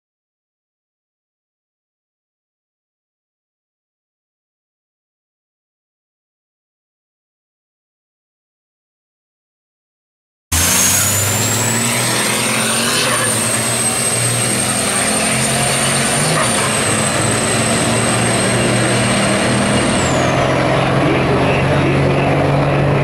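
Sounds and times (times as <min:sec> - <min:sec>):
high whistle gliding down: 0:10.5 - 0:20.6
diesel truck engine revving: 0:10.5 - 0:23.0
heavy rushing noise: 0:10.5 - 0:23.0.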